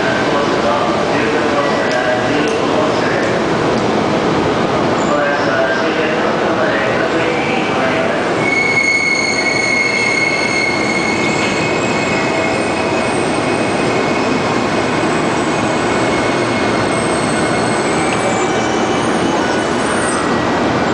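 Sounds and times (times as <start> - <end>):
train rumbling on track: 0.0 - 20.9
high metallic squeal: 8.4 - 14.4.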